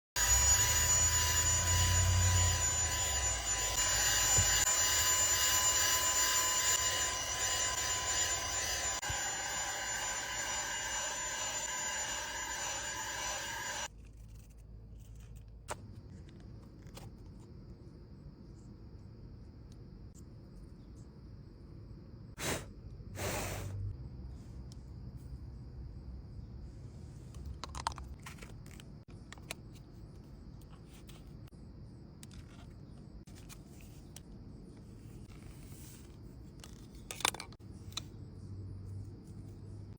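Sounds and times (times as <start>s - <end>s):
handheld vacuum whining: 0.2s - 13.9s.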